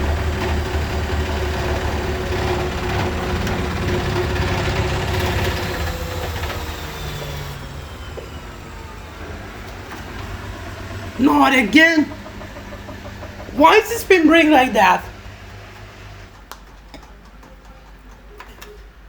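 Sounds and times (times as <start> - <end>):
washing machine spinning: 0.0 - 19.0.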